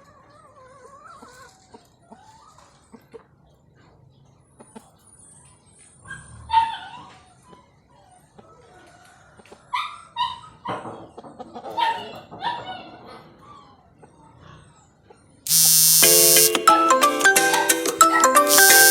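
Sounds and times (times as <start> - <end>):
electronic ringtone melody: 15.5 - 18.9.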